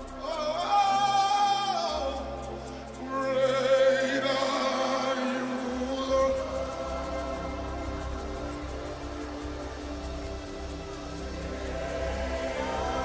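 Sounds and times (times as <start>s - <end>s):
person singing with vibrato: 0.0s - 9.2s
soft sustained chords: 0.0s - 13.0s.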